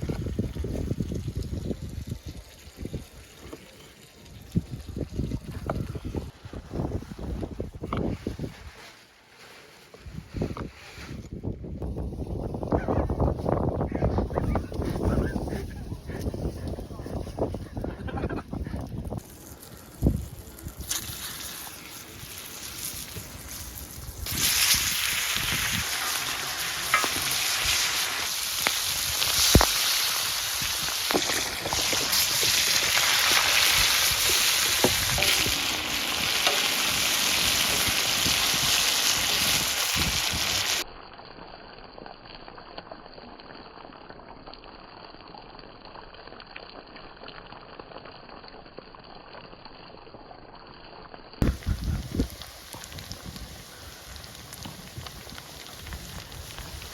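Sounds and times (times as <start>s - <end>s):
food sizzling in a frying pan: 19.2s - 40.8s.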